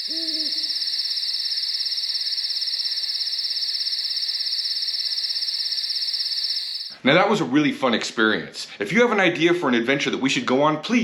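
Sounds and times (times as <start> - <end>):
crickets trilling: 0.0 - 7.0.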